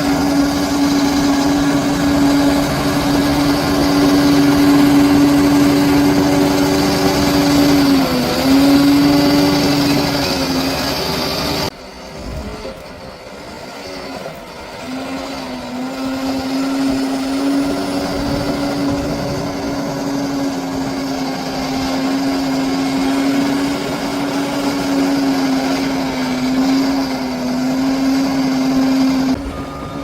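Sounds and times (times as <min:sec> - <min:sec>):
bulldozer engine running under load: 0:00.0 - 0:30.0.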